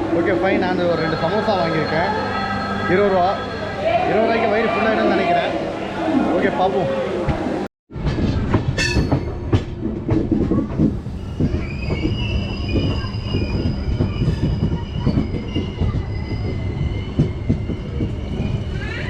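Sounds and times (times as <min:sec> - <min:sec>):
train rumble: 0:00.0 - 0:19.0
high wheel squeal: 0:11.2 - 0:19.0.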